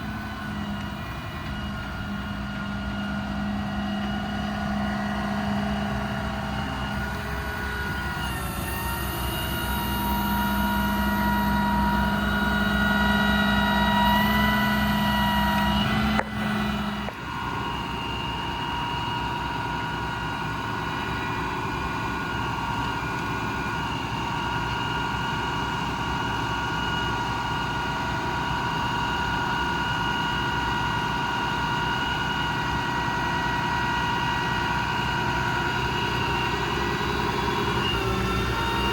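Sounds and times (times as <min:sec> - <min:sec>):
low hum: 0:00.0 - 0:23.7
diesel truck engine running: 0:00.0 - 0:38.9
hydraulic whine: 0:00.0 - 0:38.9.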